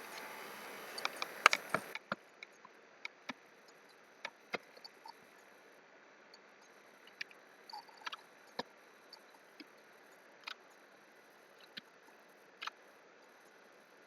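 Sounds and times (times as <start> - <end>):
low room hiss: 0.0 - 14.0.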